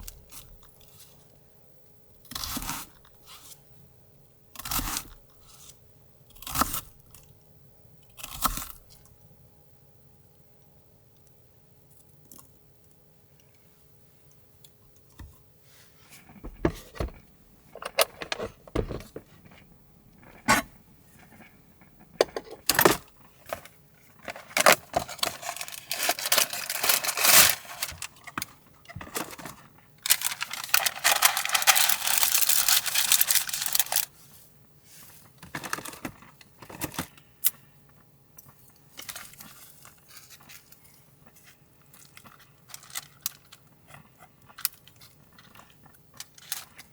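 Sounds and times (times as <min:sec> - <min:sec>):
noisy handling: 0:16.2 - 0:28.2, 0:29.0 - 0:34.1
small objects clicking and knocking: 0:22.2 - 0:23.6, 0:30.1 - 0:34.1.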